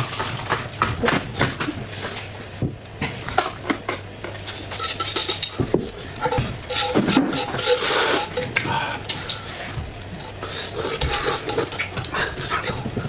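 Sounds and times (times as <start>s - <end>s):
utensils clinking on dishes: 3.0s - 13.0s.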